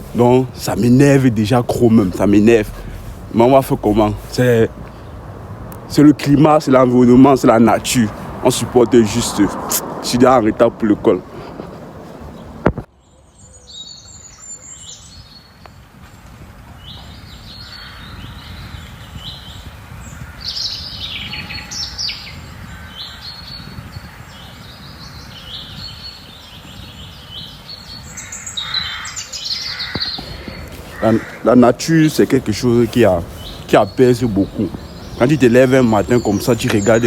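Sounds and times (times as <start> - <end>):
low steady background rumble: 0.0 - 9.0
songbirds chirping: 0.0 - 37.0.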